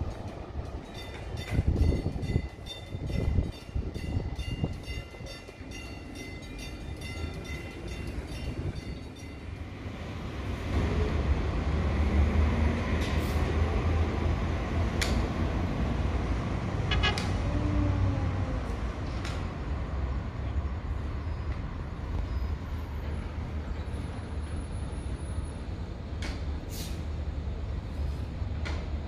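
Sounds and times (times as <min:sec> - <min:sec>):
train wheels clicking on rails: 0:00.0 - 0:17.5
train rumbling: 0:00.0 - 0:29.0.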